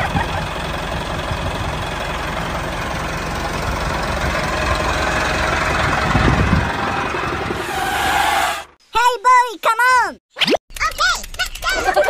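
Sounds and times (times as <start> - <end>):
tractor engine knocking: 0.0 - 7.6.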